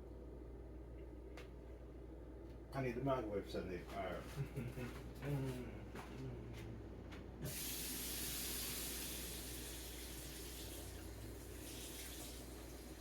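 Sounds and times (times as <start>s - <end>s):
kitchen tap water running: 7.4s - 13.0s.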